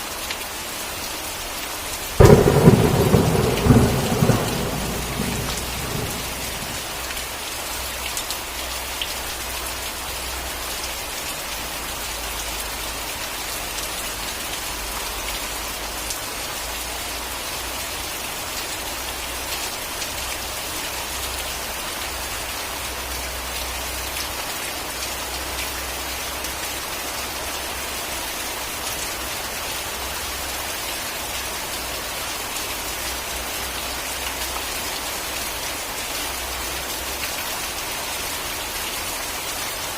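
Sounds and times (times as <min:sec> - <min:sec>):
rain falling steadily: 0:00.0 - 0:39.9
thunder rumble: 0:02.2 - 0:07.1.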